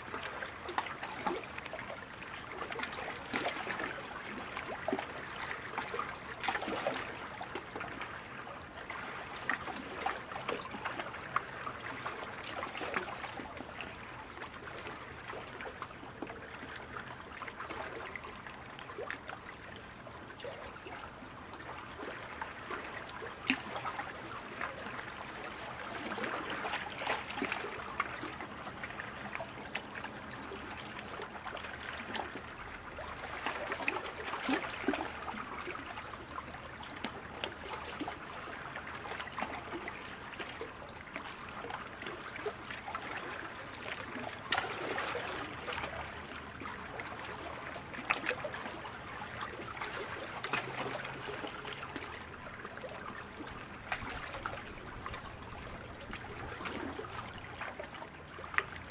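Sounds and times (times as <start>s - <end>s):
paddle splashes: 0.0s - 58.9s.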